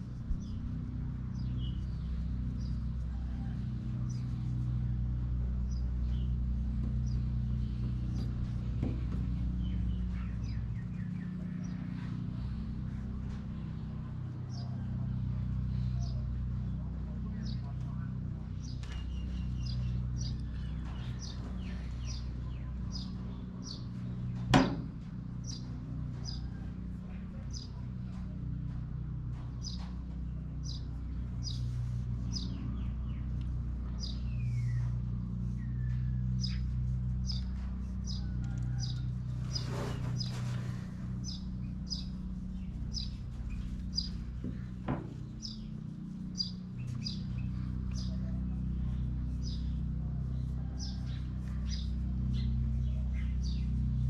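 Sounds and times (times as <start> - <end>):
low hum: 0.0 - 54.0
bird chirping: 41.2 - 49.9.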